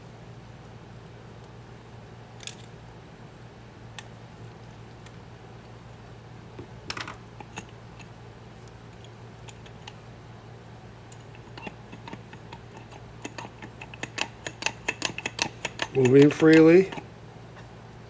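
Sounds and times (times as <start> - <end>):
steady low hum: 0.0 - 18.0
small metallic clicks and taps: 11.1 - 17.0.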